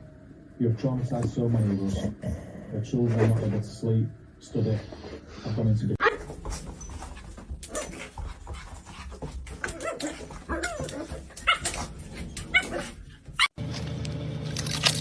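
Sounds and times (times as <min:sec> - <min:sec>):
dog whimpering and yipping: 0:09.6 - 0:11.8.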